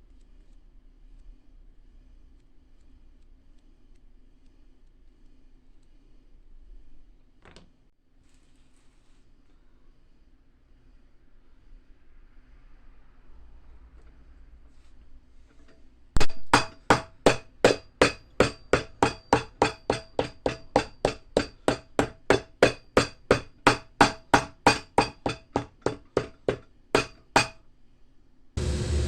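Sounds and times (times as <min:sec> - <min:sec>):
hammer blows with metallic ring: 0:15.6 - 0:27.6
steady machine noise: 0:28.6 - 0:29.0.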